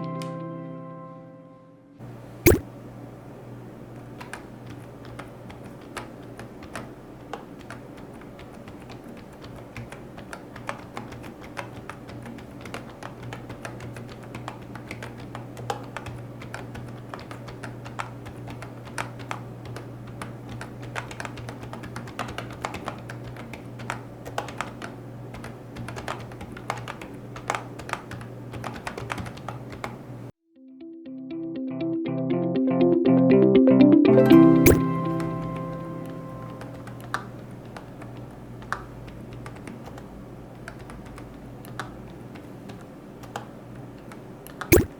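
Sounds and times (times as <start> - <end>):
typing on a keyboard: 4.0 - 30.1, 36.5 - 44.9.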